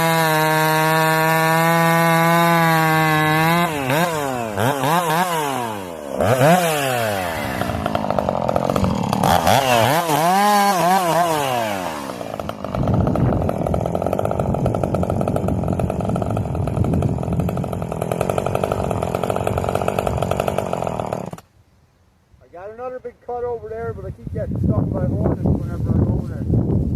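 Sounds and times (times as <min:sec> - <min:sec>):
chainsaw revving: 0:00.0 - 0:21.5.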